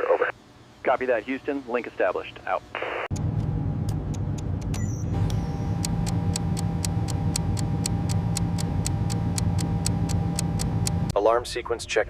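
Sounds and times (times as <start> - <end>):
low machine hum: 0.0 - 11.2
fast even ticking: 5.8 - 11.1.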